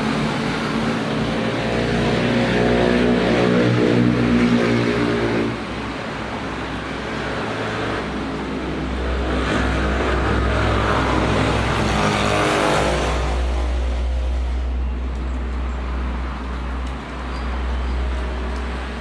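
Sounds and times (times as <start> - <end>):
vehicle passing by: 0.0 - 5.8, 7.0 - 14.8.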